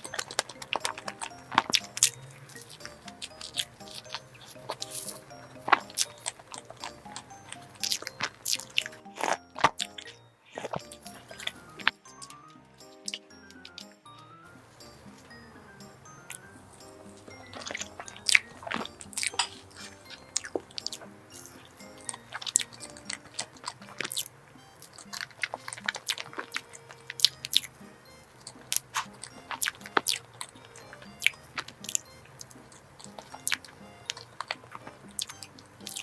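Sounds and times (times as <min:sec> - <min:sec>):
close-miked eating and chewing: 0:00.0 - 0:14.0, 0:14.6 - 0:36.0
soft background music: 0:00.0 - 0:36.0.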